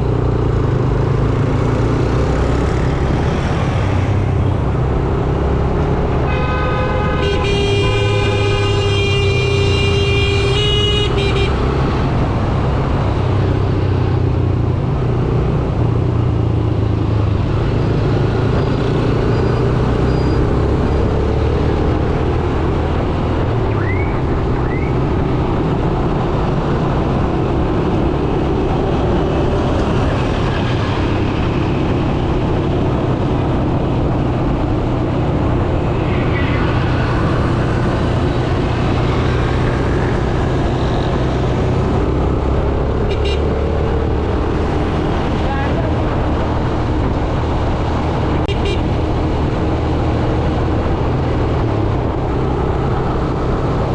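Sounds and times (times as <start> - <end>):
road and traffic noise: 0.0 - 53.9
vehicle horn: 6.2 - 11.6, 43.1 - 43.6, 48.5 - 49.0.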